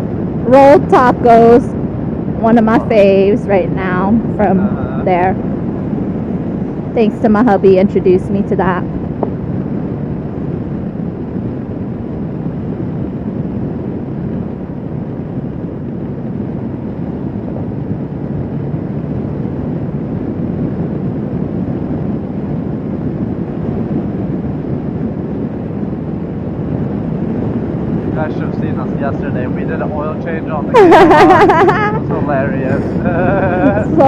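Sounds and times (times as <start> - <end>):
wind over microphone: 0.0 - 34.0.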